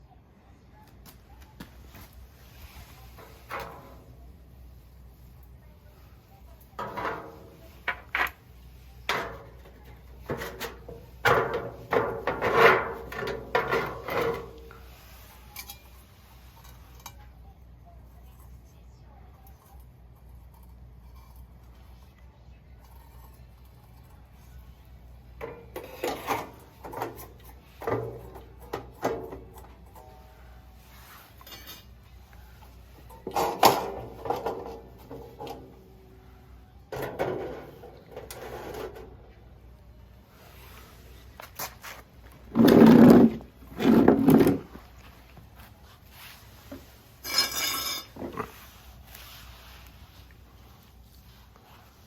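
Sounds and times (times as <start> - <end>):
objects knocking and scraping: 1.6 - 4.2, 6.7 - 16.0, 25.4 - 35.9, 36.9 - 39.3, 41.3 - 45.7, 46.6 - 49.2.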